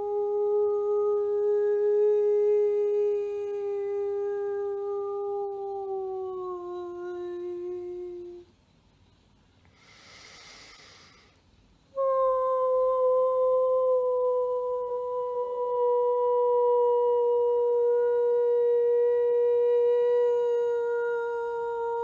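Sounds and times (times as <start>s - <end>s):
woman singing a held note: 0.0s - 8.5s, 11.9s - 22.0s
breath drawn: 9.7s - 11.4s.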